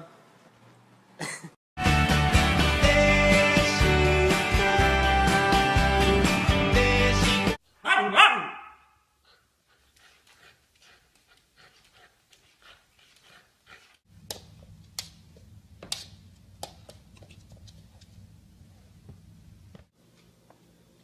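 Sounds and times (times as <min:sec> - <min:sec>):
dog panting: 0:09.2 - 0:14.0.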